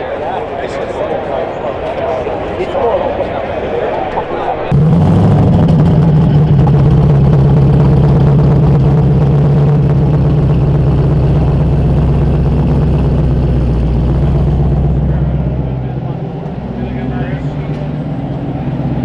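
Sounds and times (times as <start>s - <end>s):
loud car engine idling: 4.0s - 19.0s.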